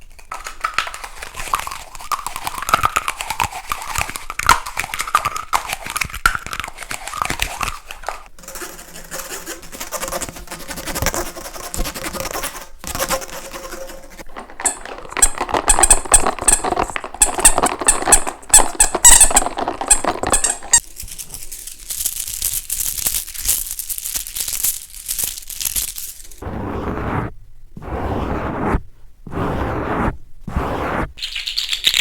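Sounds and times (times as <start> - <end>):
short squeaks: 14.3 - 20.8
high hissing scratch: 26.4 - 32.0.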